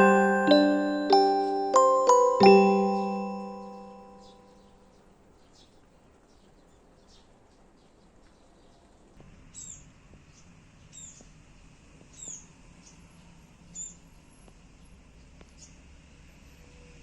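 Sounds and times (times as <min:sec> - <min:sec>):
faint steady background noise: 0:00.0 - 0:04.4.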